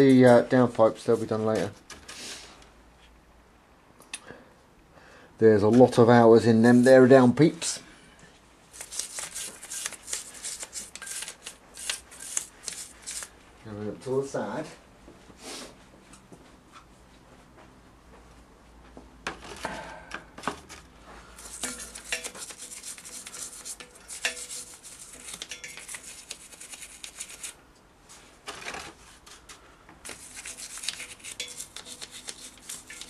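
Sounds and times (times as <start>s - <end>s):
hand scrubbing engine: 21.4s - 27.5s, 30.1s - 33.0s.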